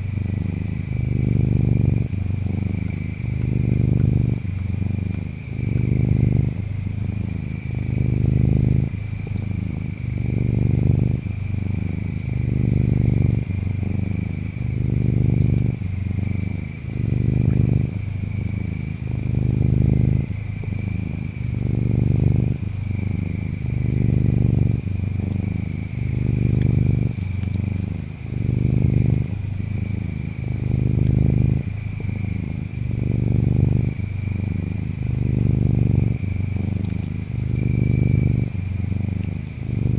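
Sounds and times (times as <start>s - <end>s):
cat purring: 0.0s - 39.9s
insects chirring: 0.0s - 39.9s
high insect chirps: 9.4s - 39.9s.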